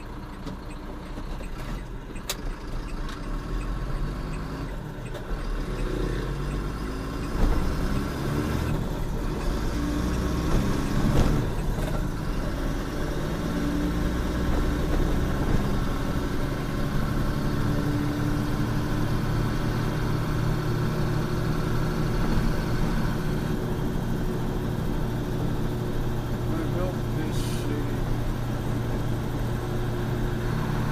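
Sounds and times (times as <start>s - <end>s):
truck engine running: 0.0s - 30.9s.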